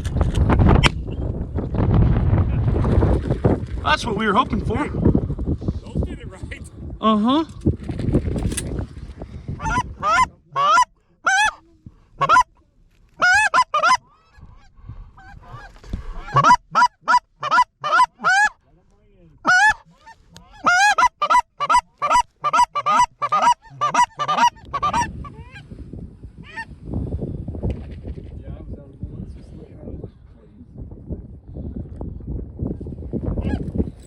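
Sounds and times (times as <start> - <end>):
goose call honks and clucks: 9.6 - 11.6, 12.2 - 12.5, 13.2 - 18.6, 19.4 - 25.7, 26.4 - 26.7.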